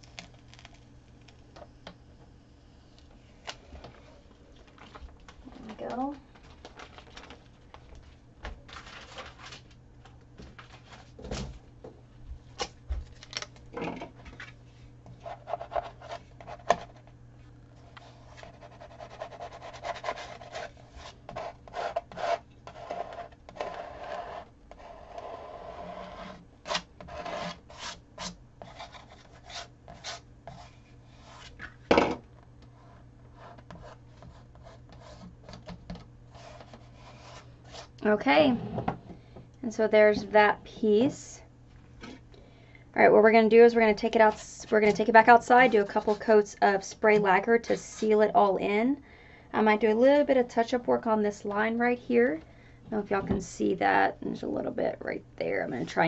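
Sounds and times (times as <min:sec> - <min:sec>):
rubbing and scraping over vinyl tape: 0:17.8 - 0:31.8, 0:44.1 - 0:46.4.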